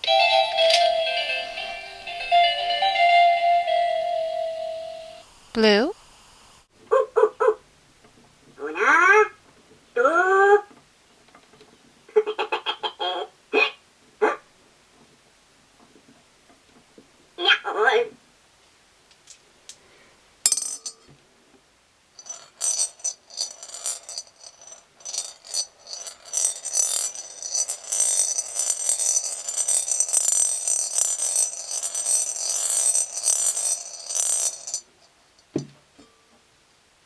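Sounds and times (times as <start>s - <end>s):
gumball rattling down spiral track: 22.2s - 34.8s.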